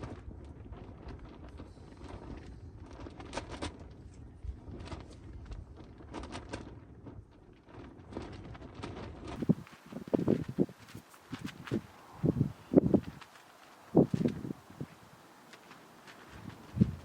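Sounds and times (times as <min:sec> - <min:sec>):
steady low rumble: 0:09.4 - 0:17.0.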